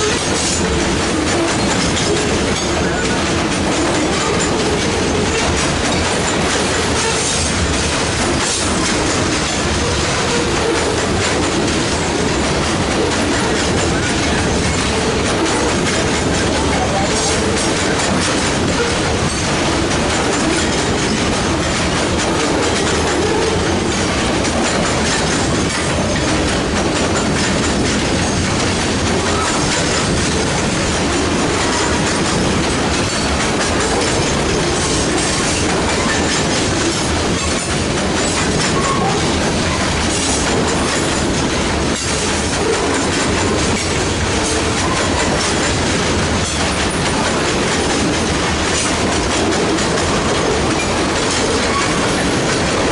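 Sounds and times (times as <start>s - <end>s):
train wheels clicking over rail joints: 0.0s - 52.9s.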